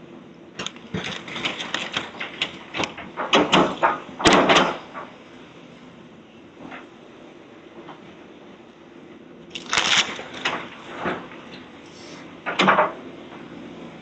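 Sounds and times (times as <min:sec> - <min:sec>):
machine engine hum: 0:00.0 - 0:14.0
demolition debris crashing: 0:00.6 - 0:05.0, 0:09.5 - 0:11.4.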